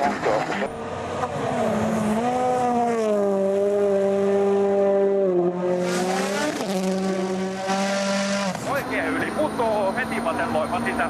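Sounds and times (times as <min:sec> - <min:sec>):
rally car engine at high revs: 0:00.0 - 0:11.0.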